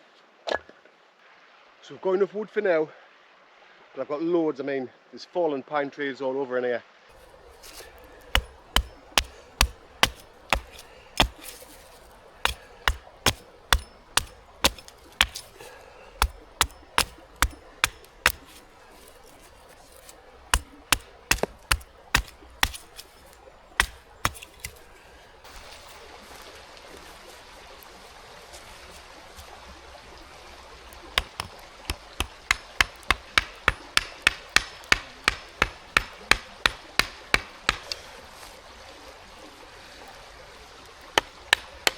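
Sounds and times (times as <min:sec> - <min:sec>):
wood chopping strokes: 0:07.2 - 0:25.8, 0:31.2 - 0:38.0.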